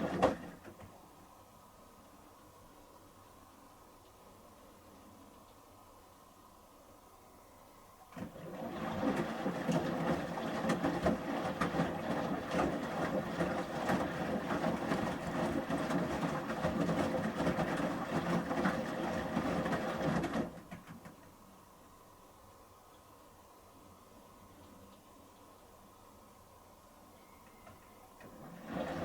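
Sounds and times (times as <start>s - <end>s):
washing machine drum turning: 0.0s - 1.0s, 8.1s - 21.2s, 28.2s - 29.0s
clothes sloshing in water: 8.2s - 20.7s.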